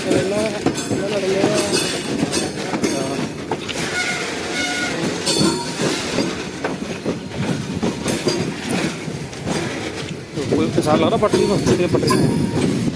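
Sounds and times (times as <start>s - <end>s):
steady train rumble: 0.0s - 12.9s
train wheels clattering over joints: 0.0s - 12.9s
wheel flanges squealing: 10.4s - 12.9s.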